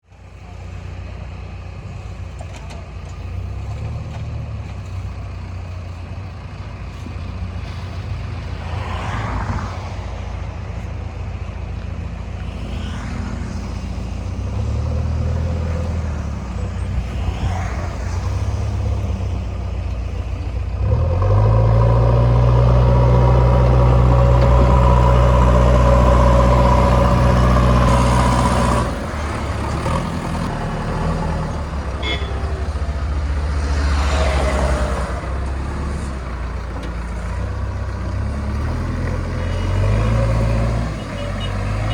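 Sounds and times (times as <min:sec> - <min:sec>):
diesel engine running: 0:00.0 - 0:41.9
engine revving under load: 0:20.6 - 0:41.9.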